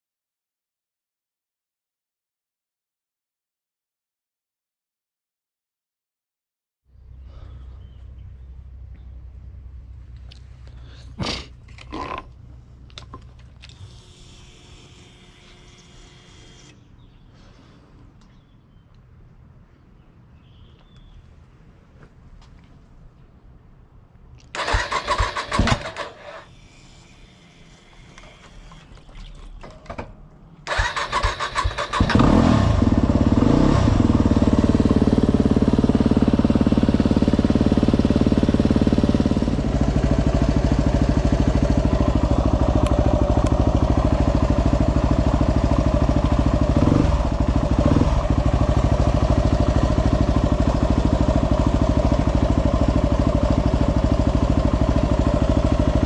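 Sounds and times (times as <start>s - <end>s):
electric starter cranking: 24.6s - 28.9s, 30.7s - 33.0s
motorcycle engine running: 30.7s - 56.0s.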